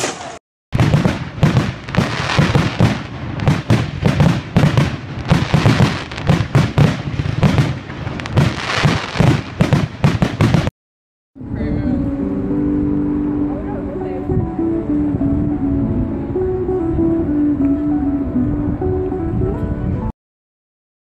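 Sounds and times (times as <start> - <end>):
fireworks crackling bangs: 0.0 - 10.7.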